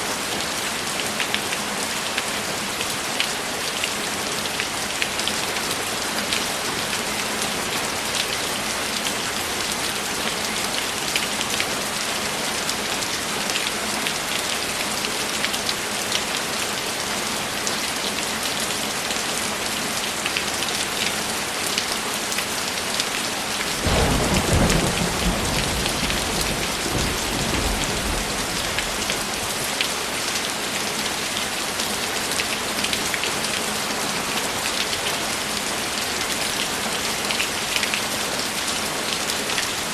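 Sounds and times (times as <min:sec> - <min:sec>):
heavy rain: 0:00.0 - 0:39.9
rolling thunder: 0:23.8 - 0:29.5.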